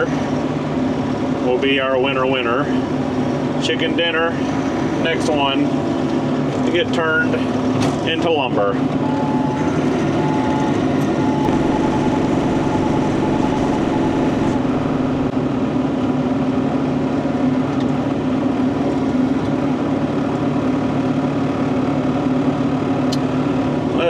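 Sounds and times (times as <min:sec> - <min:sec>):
excavator diesel engine running: 0:11.3 - 0:15.4.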